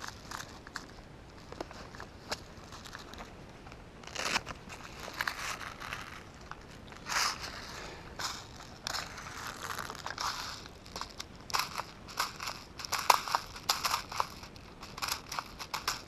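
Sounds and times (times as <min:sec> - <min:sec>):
dry brush crunching underfoot: 0:04.0 - 0:16.0.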